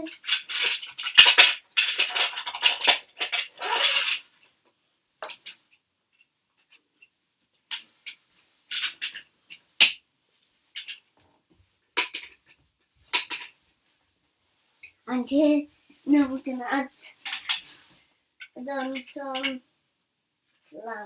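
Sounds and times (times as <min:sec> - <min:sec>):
plastic toy bricks clattering: 0:00.0 - 0:04.2, 0:12.0 - 0:13.5, 0:17.2 - 0:17.6.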